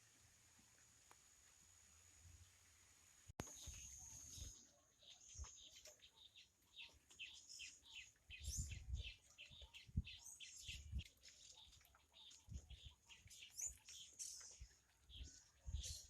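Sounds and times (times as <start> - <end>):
small birds chirping: 3.4 - 16.0.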